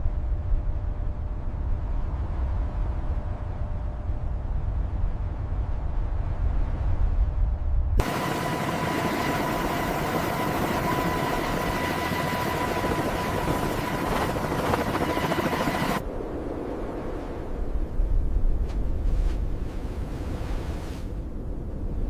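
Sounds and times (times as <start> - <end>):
helicopter turbine and rotor: 8.0 - 18.0.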